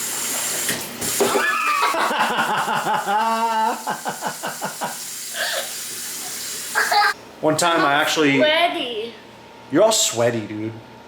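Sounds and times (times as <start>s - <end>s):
child making playful sounds: 6.8s - 7.2s.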